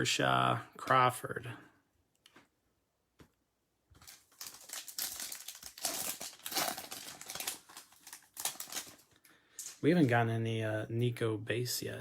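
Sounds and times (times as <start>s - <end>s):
foil wrapper crinkling: 4.0s - 9.8s.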